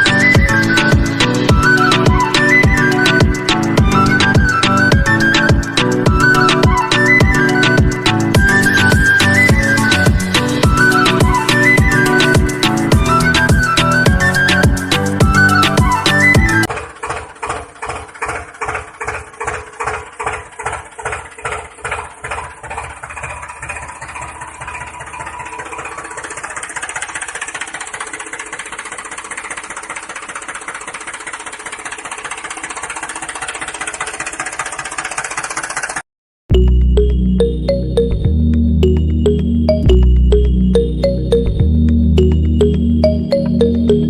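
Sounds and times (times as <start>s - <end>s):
small motor running: 15.9s - 36.0s.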